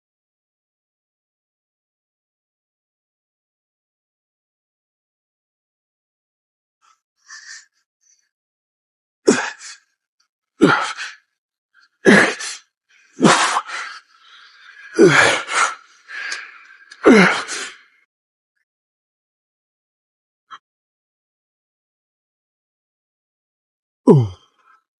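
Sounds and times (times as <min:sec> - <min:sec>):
man grunting and exhaling: 0:09.3 - 0:09.8, 0:10.6 - 0:11.2, 0:12.0 - 0:17.8, 0:24.1 - 0:24.8.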